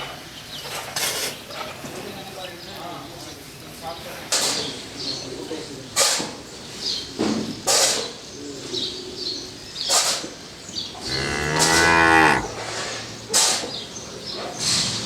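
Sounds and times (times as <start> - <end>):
cow mooing: 11.0 - 12.8.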